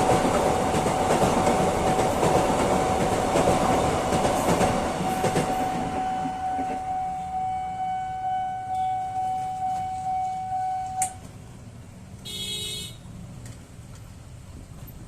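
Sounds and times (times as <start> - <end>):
crossing alarm electronic tone: 4.8 - 11.2.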